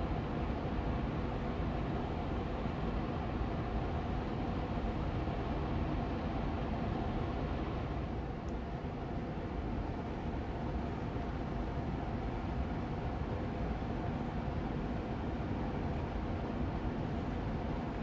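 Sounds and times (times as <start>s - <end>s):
air purifier fan humming: 0.0s - 18.0s.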